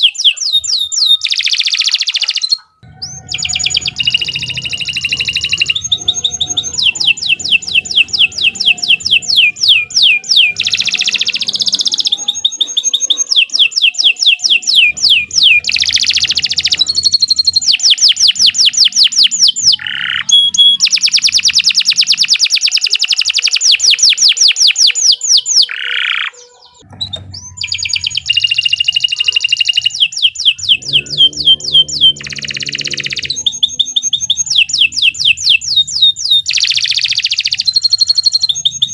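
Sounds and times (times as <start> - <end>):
canary singing fast trills: 0.0 - 38.9.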